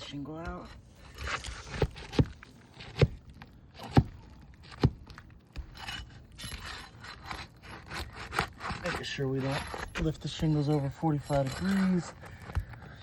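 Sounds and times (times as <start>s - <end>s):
tool scraping shingle: 0.0s - 13.0s
sharp knocks on roof shingle: 1.5s - 5.7s.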